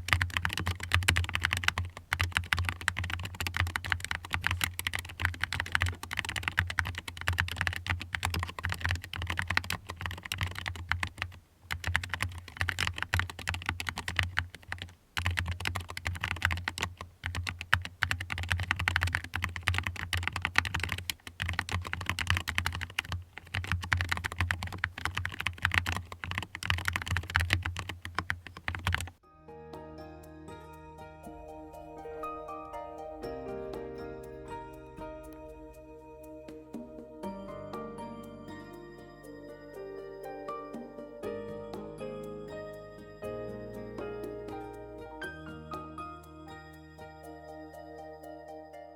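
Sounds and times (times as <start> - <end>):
mechanical keyboard typing: 0.0 - 29.2
soft background music: 29.2 - 48.9.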